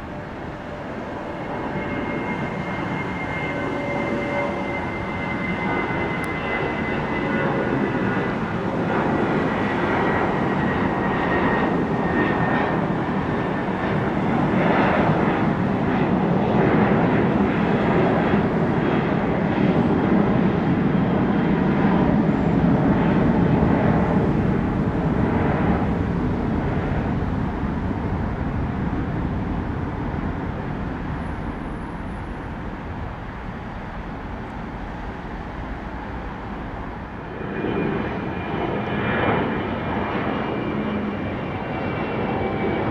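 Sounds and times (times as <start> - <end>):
jet airliner engine roar: 0.0 - 42.9.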